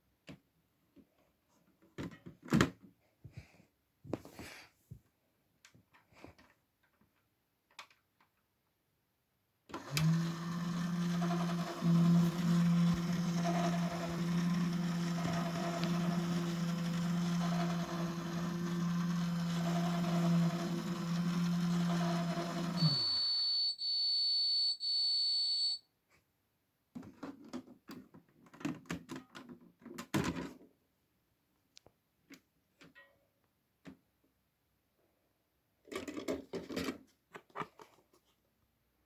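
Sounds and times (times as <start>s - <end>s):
microwave oven humming: 9.8s - 23.4s
high beeps: 22.8s - 25.8s.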